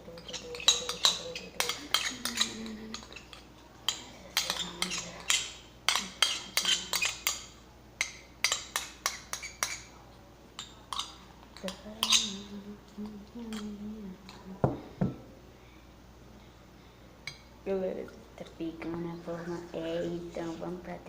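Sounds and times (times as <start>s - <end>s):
spoon scraping bowl: 0.1s - 9.9s, 10.6s - 12.5s.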